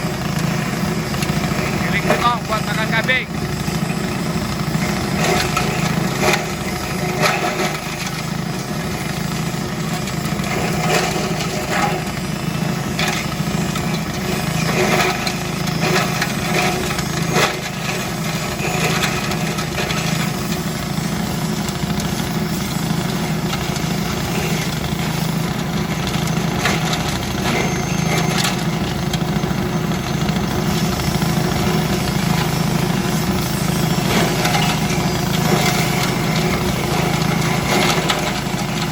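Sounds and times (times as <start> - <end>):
grass chopper engine running: 0.0 - 38.9.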